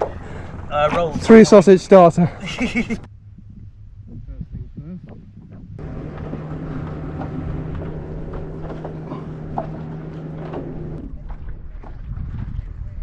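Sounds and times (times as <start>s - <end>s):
low motor hum: 2.8s - 13.0s.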